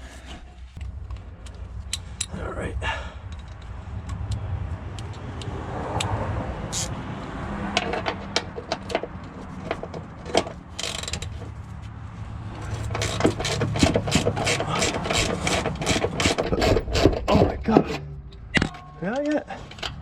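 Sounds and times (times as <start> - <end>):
low hum: 0.0 - 6.7
ratchet wrench clicking: 3.2 - 7.0, 10.7 - 11.4, 12.7 - 16.4
metallic clicks and knocks: 7.7 - 11.6, 12.7 - 20.0.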